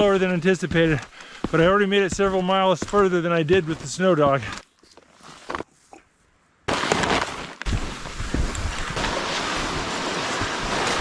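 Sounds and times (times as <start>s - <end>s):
wind buffeting microphone: 7.7s - 11.0s.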